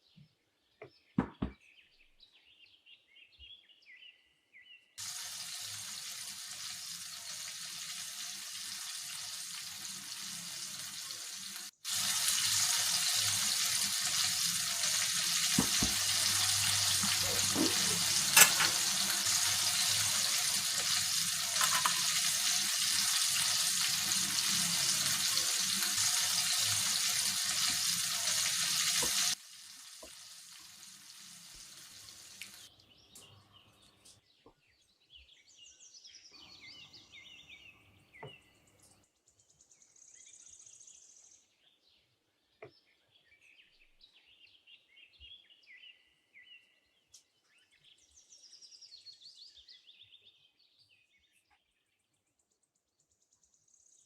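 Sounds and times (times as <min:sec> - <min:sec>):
chicken sizzling in hot oil: 0:05.0 - 0:32.7.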